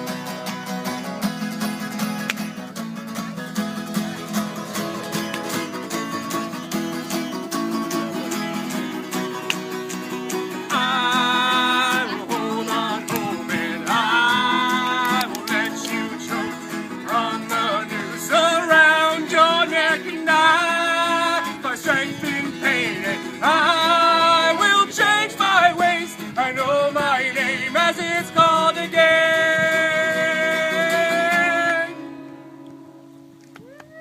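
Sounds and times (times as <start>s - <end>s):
strummed guitar: 0.0s - 33.3s
people singing: 10.4s - 32.0s.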